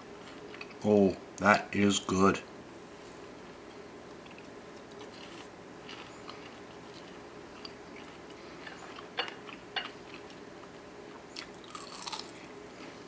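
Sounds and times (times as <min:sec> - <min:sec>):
faint chewing of crispy food: 0:04.1 - 0:13.0.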